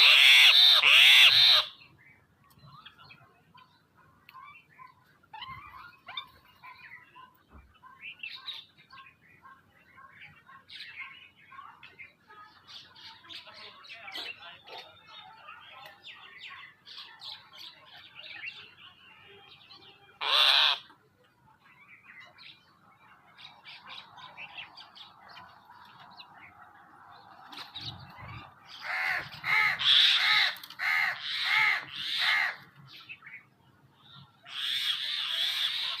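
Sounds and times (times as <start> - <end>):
loud harsh bird calls: 0.0 - 1.9, 20.1 - 20.9, 27.6 - 33.5, 34.1 - 36.0
small birds chirping: 0.6 - 20.2, 20.8 - 36.0.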